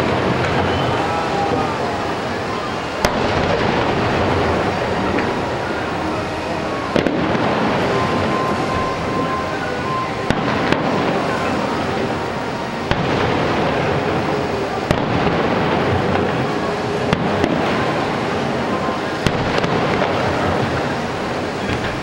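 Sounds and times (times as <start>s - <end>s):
fireworks crackling and rumbling: 0.0s - 22.0s
sharp firework bangs: 3.0s - 5.4s, 6.8s - 9.3s, 12.8s - 20.9s.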